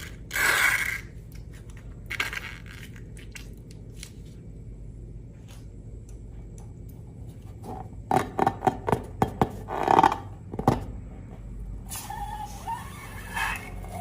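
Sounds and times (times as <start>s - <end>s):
hissy rubbing with squeaks: 11.8s - 14.0s.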